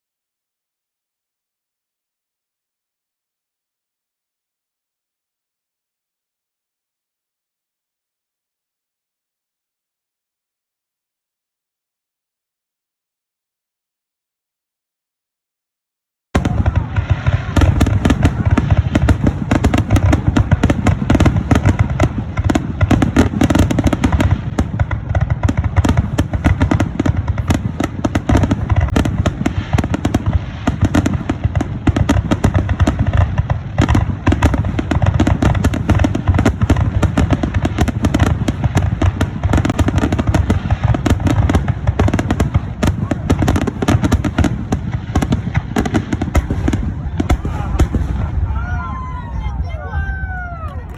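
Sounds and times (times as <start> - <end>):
fireworks barrage bangs: 16.4 - 50.9.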